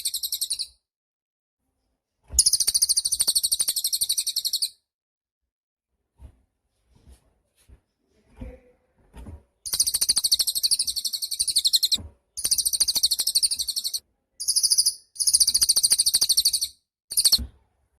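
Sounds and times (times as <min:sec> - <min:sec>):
faint soft sounds: 0:06.0 - 0:09.6.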